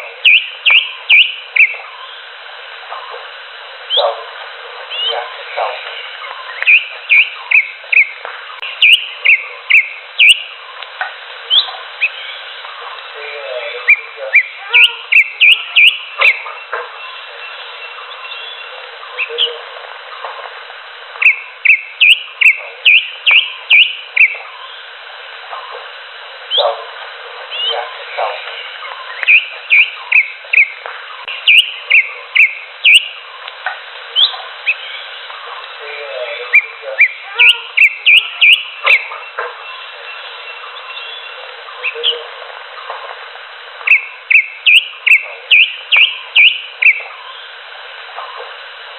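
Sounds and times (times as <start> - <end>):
steady background noise: 0.0 - 48.9
bird singing whistled notes: 0.2 - 1.8, 6.4 - 10.5, 13.9 - 16.4, 21.2 - 24.4, 29.1 - 33.2, 36.5 - 42.0, 43.9 - 47.0.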